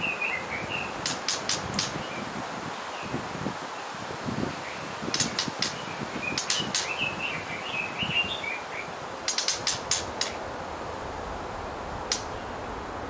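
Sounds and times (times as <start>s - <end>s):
songbird chirping: 0.0s - 10.5s, 12.0s - 12.8s
steady background hiss: 0.0s - 13.0s
sharp clicks: 1.0s - 2.0s, 5.1s - 5.8s, 6.4s - 6.9s, 9.3s - 10.4s.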